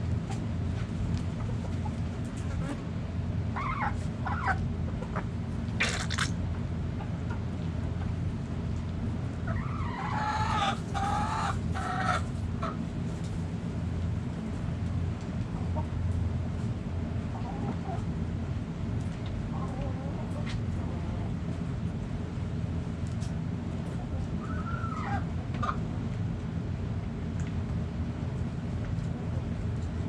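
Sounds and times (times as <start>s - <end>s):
steady low hum: 0.0s - 30.0s
chickens clucking: 0.2s - 6.1s, 6.9s - 8.3s, 9.4s - 13.4s, 17.2s - 18.1s, 19.0s - 21.6s, 23.1s - 25.9s
chicken drawn-out call: 3.5s - 5.3s, 9.4s - 12.8s, 24.3s - 25.8s.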